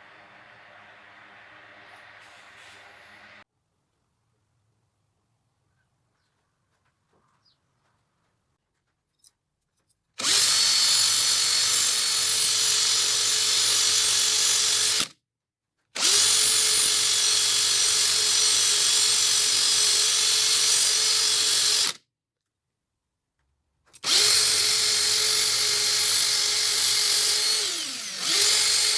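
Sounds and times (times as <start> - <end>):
handheld power tool running: 10.2 - 15.1, 16.0 - 22.0, 24.0 - 28.9.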